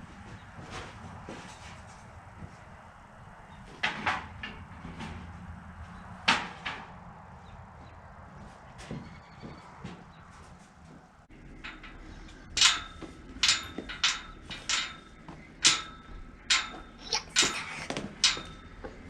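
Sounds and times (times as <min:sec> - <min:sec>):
sharp ringing knocks: 0:11.4 - 0:19.0.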